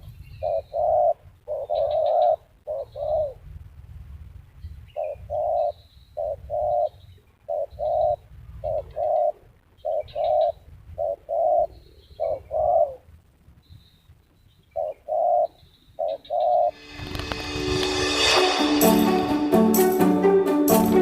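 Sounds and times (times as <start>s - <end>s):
dove cooing: 0.4s - 3.4s, 5.0s - 6.9s, 7.5s - 13.0s, 14.8s - 16.7s.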